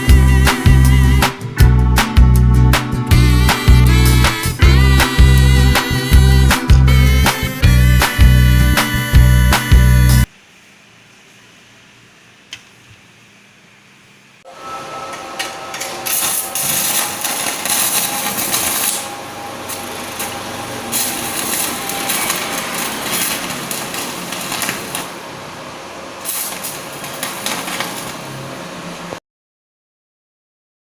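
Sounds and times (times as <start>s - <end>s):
welding arc crackling: 16.0s - 25.2s.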